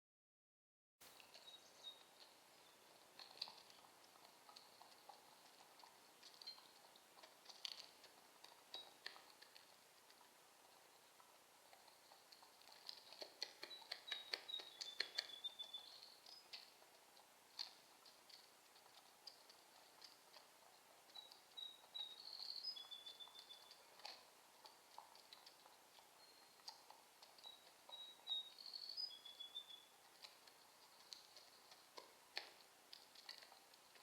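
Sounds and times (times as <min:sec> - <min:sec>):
faint raindrops ticking: 0:01.0 - 0:34.0
small bird singing: 0:01.1 - 0:03.9, 0:06.3 - 0:09.5, 0:12.9 - 0:16.8, 0:21.1 - 0:24.3, 0:25.2 - 0:32.1.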